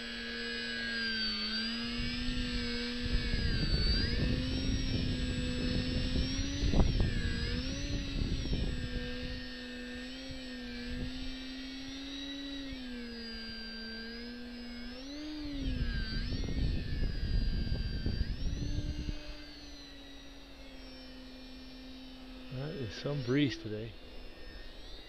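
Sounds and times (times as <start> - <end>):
model plane motor whining: 0.0 - 25.0
wind rumbling on microphone: 1.9 - 9.6, 10.2 - 12.8, 15.2 - 19.6.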